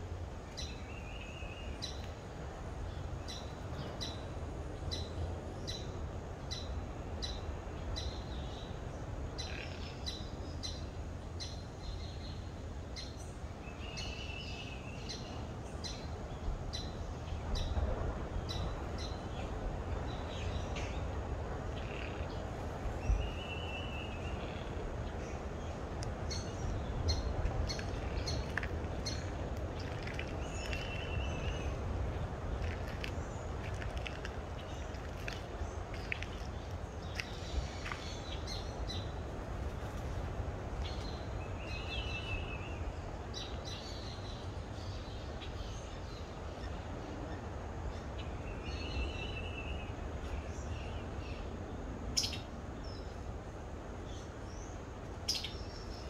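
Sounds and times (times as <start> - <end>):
low background rumble: 0.0 - 52.1.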